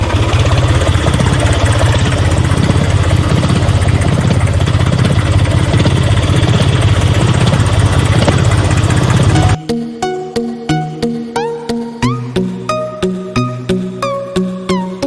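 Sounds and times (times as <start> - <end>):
engine idling: 0.0 - 9.6.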